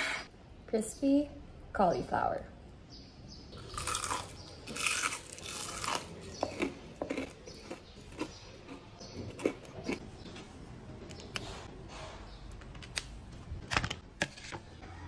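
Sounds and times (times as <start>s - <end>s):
loud crunch of biting fried food: 3.6s - 10.0s
chewing with crisp crackles: 3.6s - 10.1s.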